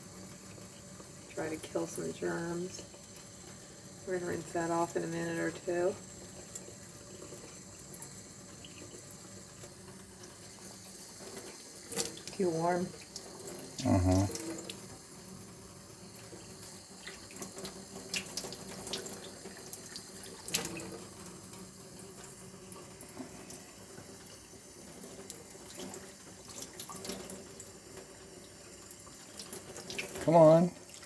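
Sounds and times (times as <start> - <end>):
water tap running into sink: 0.0 - 31.0
small clicks and splashes: 8.0 - 12.4, 16.2 - 21.6, 24.9 - 28.1, 28.8 - 31.0.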